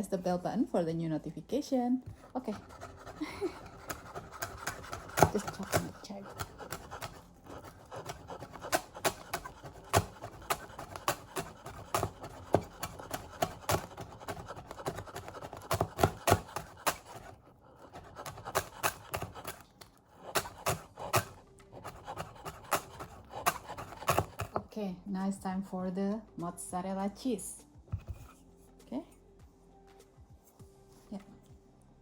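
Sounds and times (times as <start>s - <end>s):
knife chopping on cutting board: 2.5s - 19.6s, 20.2s - 24.7s.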